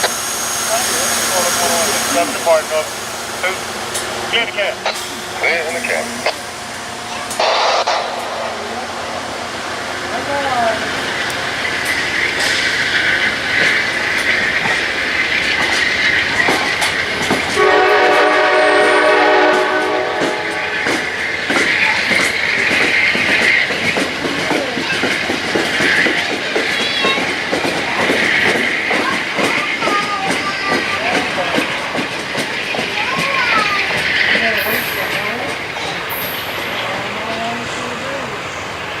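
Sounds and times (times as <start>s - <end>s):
train wheels clicking over rails: 9.7s - 37.5s
train horn blast: 17.6s - 20.7s.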